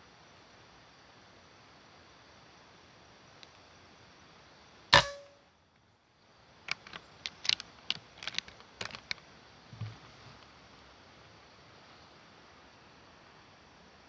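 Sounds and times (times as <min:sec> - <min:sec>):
air rifle shot: 0:05.0 - 0:05.3.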